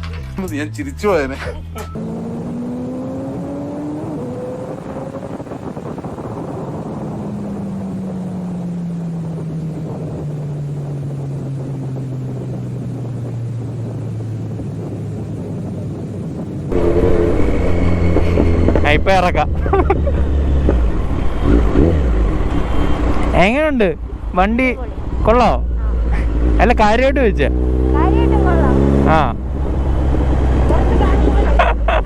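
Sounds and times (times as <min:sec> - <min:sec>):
motorcycle engine revs falling: 0:02.0 - 0:23.4
wind on microphone: 0:02.3 - 0:23.3.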